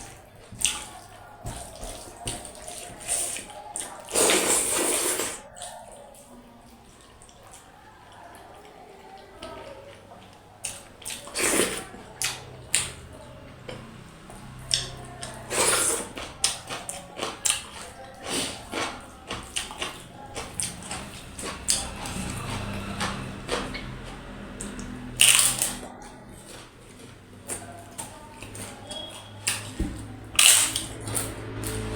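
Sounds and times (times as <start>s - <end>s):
faint background music: 0.0s - 31.9s
wet chewing and lip smacks: 14.7s - 24.0s.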